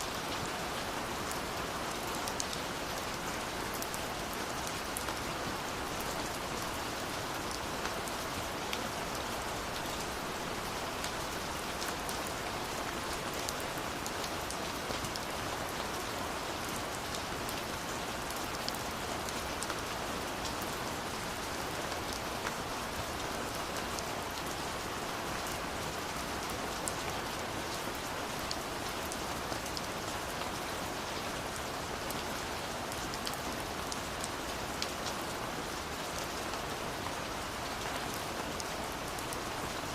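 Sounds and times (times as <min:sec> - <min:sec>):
steady rain hiss: 0:00.0 - 0:39.9
raindrops ticking on a surface: 0:00.1 - 0:39.9.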